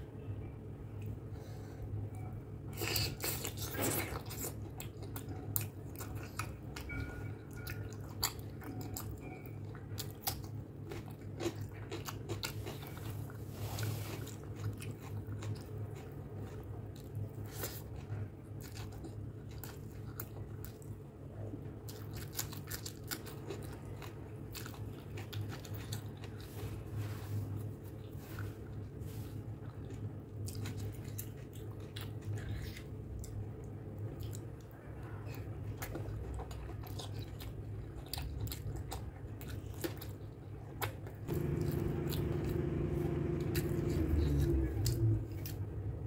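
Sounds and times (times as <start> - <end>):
steady low hum: 0.0 - 46.0
food crunching: 7.6 - 21.0, 21.8 - 26.6, 27.6 - 45.8
wet chewing mouth sounds: 7.6 - 21.0, 27.6 - 42.4.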